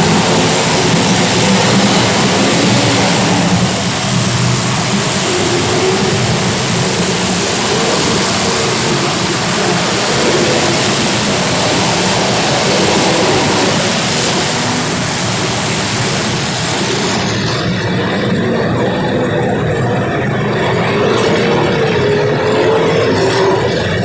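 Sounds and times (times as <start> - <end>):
race car engines: 0.0 - 24.0.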